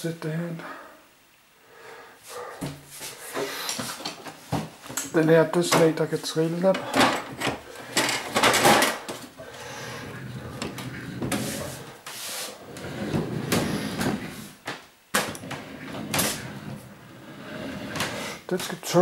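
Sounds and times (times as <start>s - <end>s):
boxes scraping and knocking: 9.5s - 14.6s, 15.3s - 19.0s.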